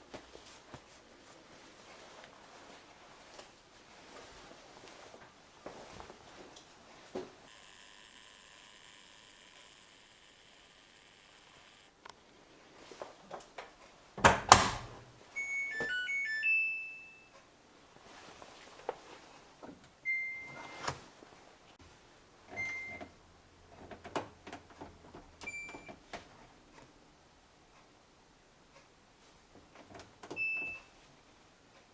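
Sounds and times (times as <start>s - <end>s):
rising electronic power-on tune: 7.5s - 11.9s.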